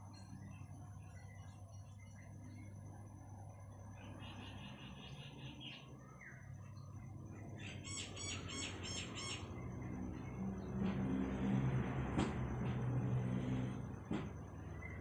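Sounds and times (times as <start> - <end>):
songbird high chirps: 0.0 - 10.4
steady low hum: 0.0 - 12.0.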